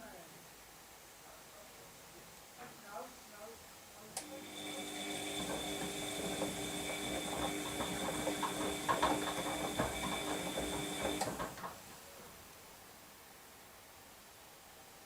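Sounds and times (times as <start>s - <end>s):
washing machine click: 4.2s - 11.8s
washing machine motor whine: 4.2s - 11.8s
drum rattling: 5.2s - 11.8s.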